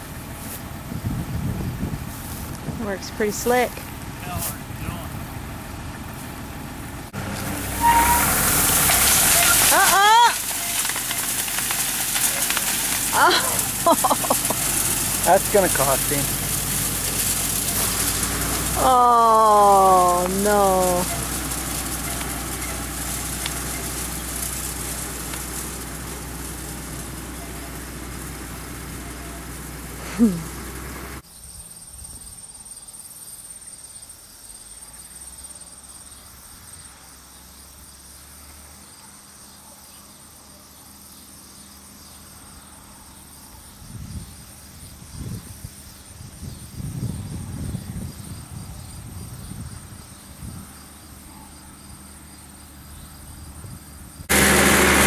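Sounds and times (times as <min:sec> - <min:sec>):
low rumbles: 0:00.0 - 0:31.2
tractor engine running: 0:00.0 - 0:31.2, 0:43.8 - 0:55.0
insects chirring: 0:08.0 - 0:18.9, 0:19.8 - 0:54.3.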